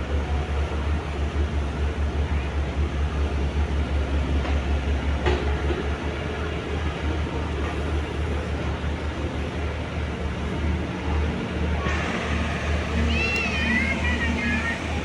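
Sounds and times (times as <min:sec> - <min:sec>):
diesel engine rumbling: 0:10.1 - 0:15.0.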